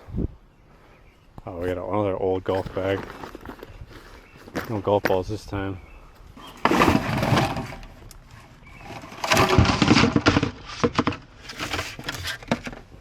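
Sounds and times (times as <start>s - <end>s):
golf clubs clattering in a bag: 8.8s - 12.9s.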